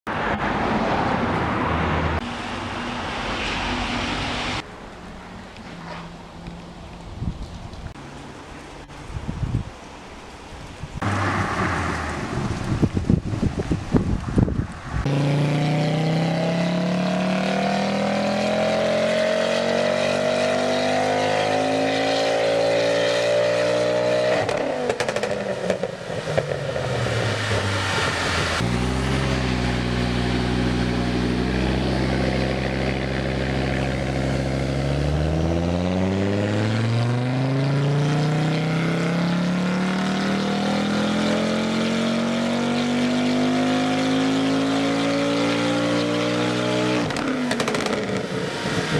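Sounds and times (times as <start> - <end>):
exhaust crackling: 11.0 - 15.3
car engine revving at full throttle: 14.9 - 48.9.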